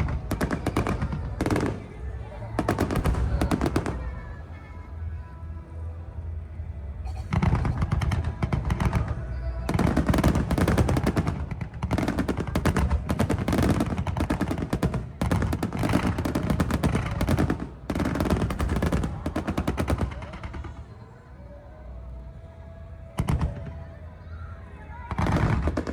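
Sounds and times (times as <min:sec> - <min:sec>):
fireworks bangs and crackling: 0:00.0 - 0:04.6, 0:07.2 - 0:21.0, 0:23.2 - 0:24.0, 0:25.1 - 0:25.9.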